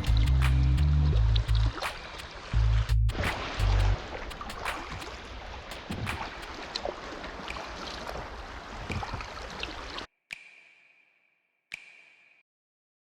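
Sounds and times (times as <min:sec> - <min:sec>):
water splashing and gurgling: 0:00.0 - 0:10.1.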